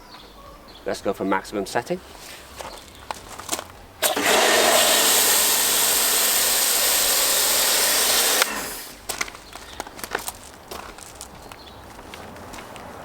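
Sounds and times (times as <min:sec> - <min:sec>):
motor hum: 0:04.0 - 0:09.1
pressure washer spray hiss: 0:04.0 - 0:09.1.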